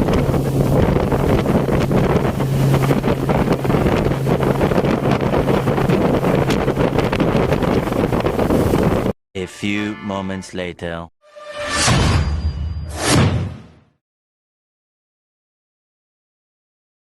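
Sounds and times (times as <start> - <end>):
motorboat engine drone: 0.0 - 9.0
water rushing past hull: 0.0 - 9.1
wind buffeting microphone: 0.0 - 9.2.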